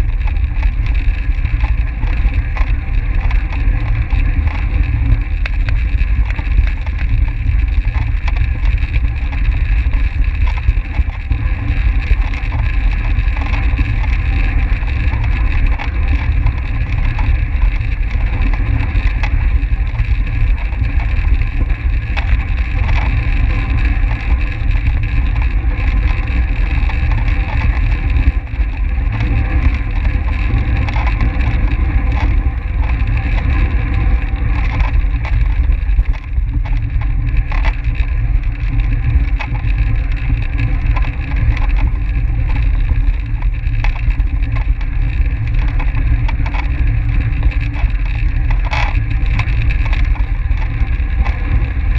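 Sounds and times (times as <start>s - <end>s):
heavy low rumble: 0.0s - 51.9s
wind on microphone: 0.0s - 51.9s.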